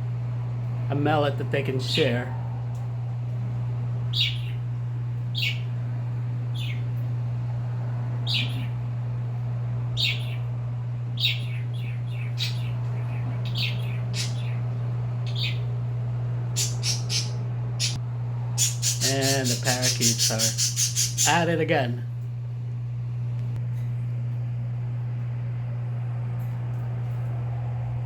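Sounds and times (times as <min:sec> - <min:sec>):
steady low hum: 0:00.0 - 0:28.0
pet birds chirping: 0:04.1 - 0:05.8, 0:06.5 - 0:07.0, 0:08.2 - 0:08.9, 0:10.0 - 0:10.5, 0:11.1 - 0:15.8, 0:16.5 - 0:18.0, 0:18.6 - 0:21.5.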